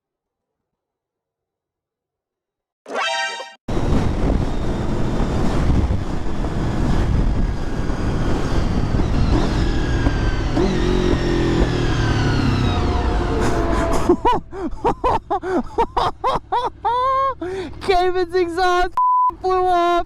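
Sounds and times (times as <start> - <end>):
wind rush: 3.7 - 10.4
motorcycle engine: 3.7 - 17.8.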